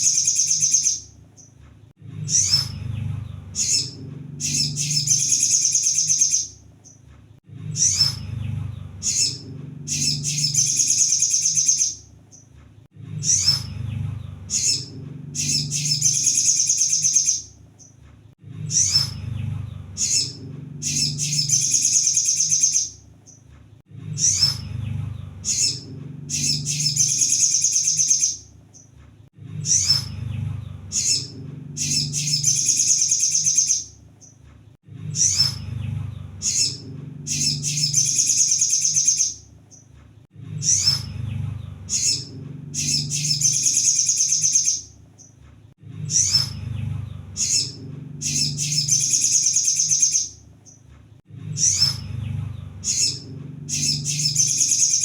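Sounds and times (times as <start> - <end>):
bird chattering trill: 0.0 - 1.1, 3.5 - 7.0, 8.9 - 12.4, 14.4 - 17.5, 19.9 - 23.0, 25.4 - 28.5, 30.9 - 34.0, 36.4 - 39.4, 41.9 - 44.9, 47.4 - 50.4, 52.8 - 55.0
low background hum: 0.0 - 55.0.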